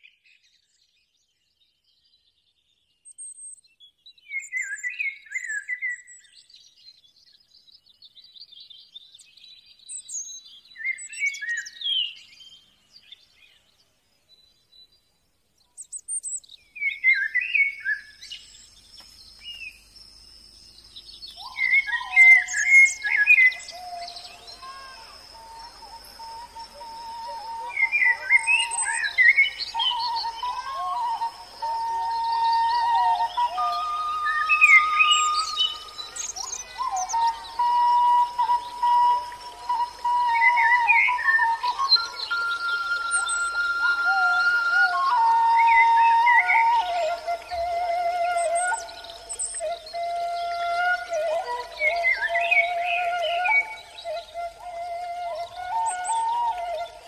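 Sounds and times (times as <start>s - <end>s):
birds chirping and calling: 20.8s - 57.0s.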